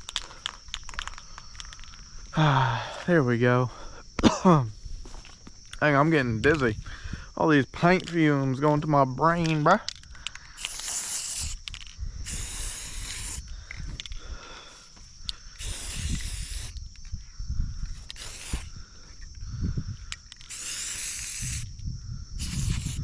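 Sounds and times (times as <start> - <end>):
spray paint can hissing: 10.5 - 14.0, 15.5 - 17.0, 17.9 - 18.8, 20.4 - 21.7, 22.4 - 23.0.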